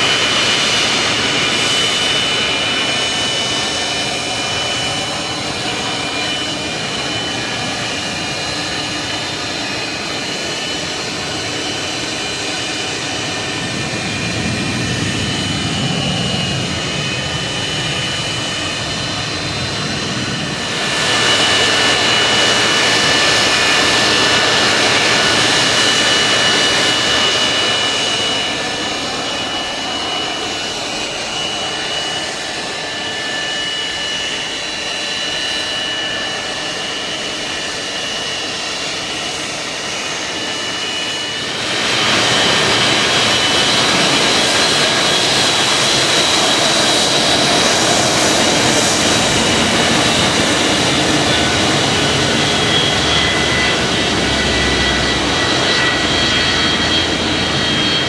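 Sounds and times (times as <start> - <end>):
aircraft engines flying past: 0.0 - 58.0.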